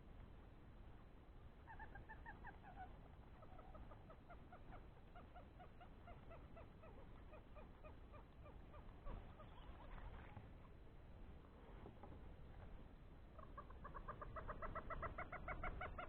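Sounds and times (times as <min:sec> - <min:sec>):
faint bird calling: 0:01.6 - 0:10.8, 0:13.3 - 0:16.0.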